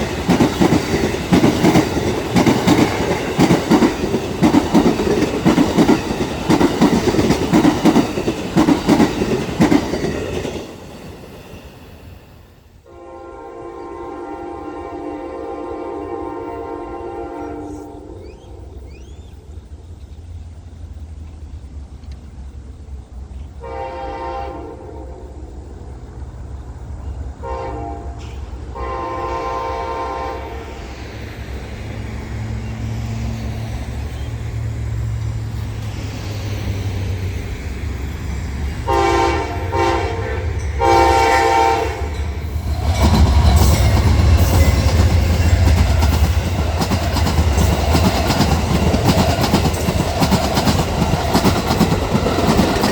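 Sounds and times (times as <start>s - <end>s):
wheels clacking over rail joints: 0.0s - 11.6s, 31.8s - 52.9s
locomotive horn blasts: 12.9s - 18.9s, 23.6s - 25.3s, 27.4s - 30.7s, 38.9s - 42.3s
locomotive engine rumble: 28.1s - 52.9s.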